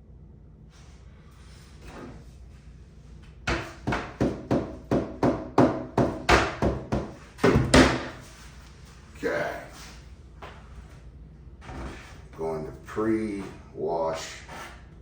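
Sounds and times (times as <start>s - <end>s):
sharp knocks on wooden box: 3.5s - 8.1s.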